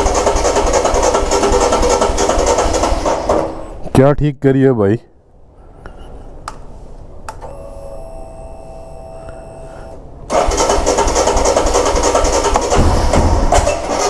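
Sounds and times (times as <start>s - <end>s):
motorcycle engine running loudly: 0.0s - 3.5s, 10.3s - 14.0s
electric starter whine: 7.3s - 14.0s.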